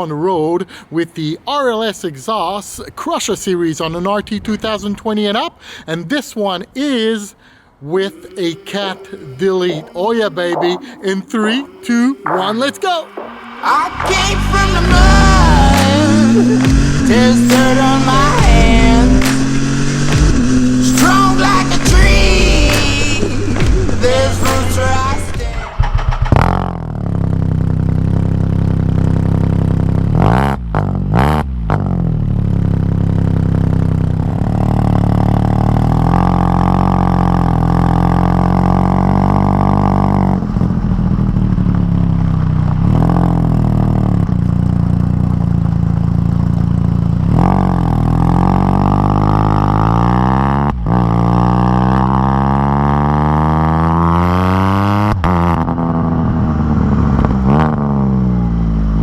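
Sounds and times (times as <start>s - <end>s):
three-cylinder engine under way: 13.1s - 59.0s.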